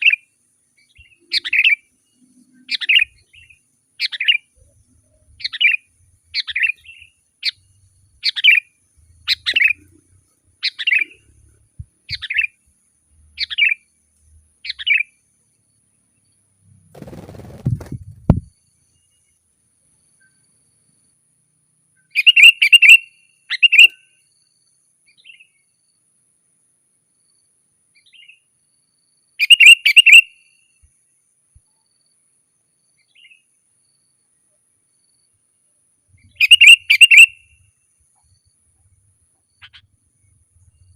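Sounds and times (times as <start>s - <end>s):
bird calling: 0.8s - 11.4s, 12.1s - 12.6s, 22.0s - 24.1s, 29.4s - 30.5s, 36.2s - 37.6s, 39.6s - 39.9s.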